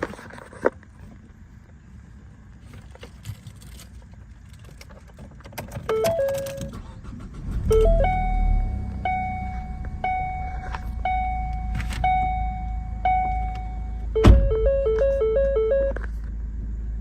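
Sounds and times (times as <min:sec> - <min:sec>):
car engine humming: 0:00.8 - 0:17.0
repeating warning tone: 0:07.5 - 0:16.0
thump: 0:14.2 - 0:14.6.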